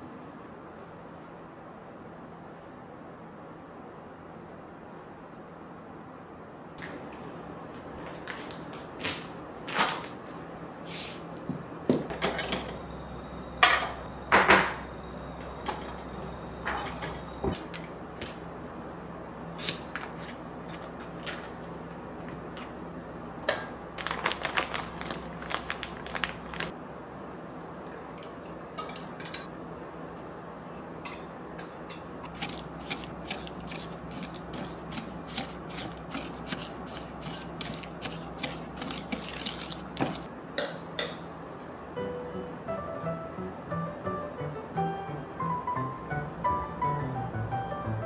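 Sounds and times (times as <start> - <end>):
dishes clinking and clattering: 12.1 - 12.8, 28.8 - 29.5.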